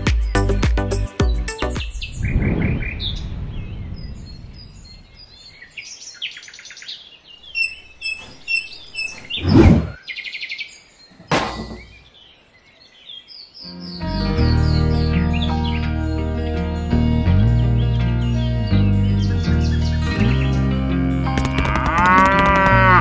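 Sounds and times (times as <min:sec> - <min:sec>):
birds chirping: 0:00.0 - 0:23.0
swishing thumps: 0:08.3 - 0:10.0.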